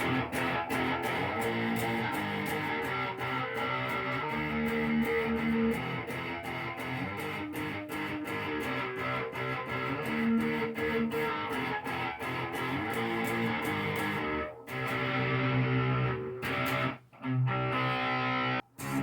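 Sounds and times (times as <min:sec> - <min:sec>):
electric guitar strumming: 0:00.0 - 0:19.0.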